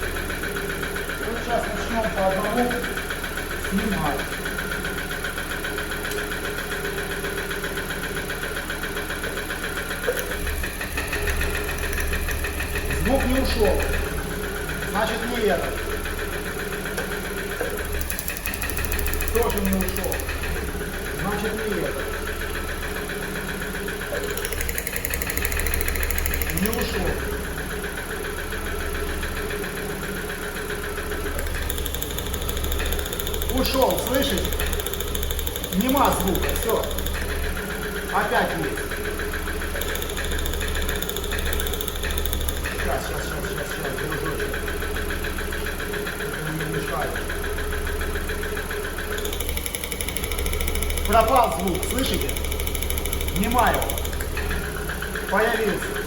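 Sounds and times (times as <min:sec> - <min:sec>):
car engine idling: 0:00.0 - 0:56.0
engine knocking: 0:00.0 - 0:56.0.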